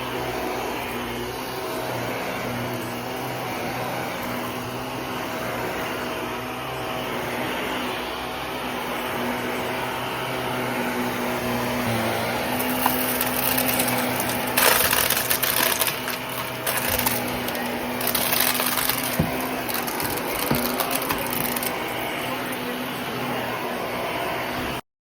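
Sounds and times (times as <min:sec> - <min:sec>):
vacuum cleaner running: 0:00.0 - 0:24.8
crackling and rattling: 0:11.9 - 0:22.7.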